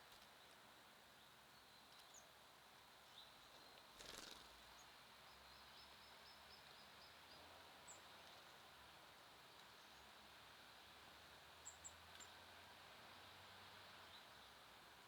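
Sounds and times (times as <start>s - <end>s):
small songbirds chirping: 3.1s - 8.6s.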